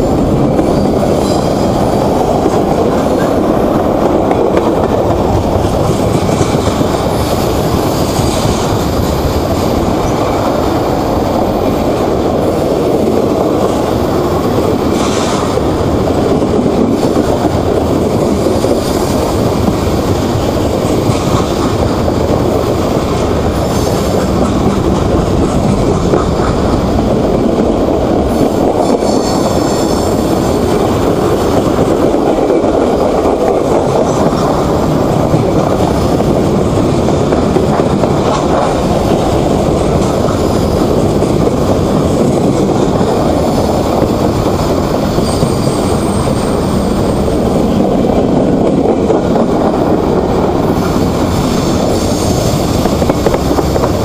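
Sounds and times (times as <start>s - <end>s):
steel train wheels on rails: 0.0s - 54.0s.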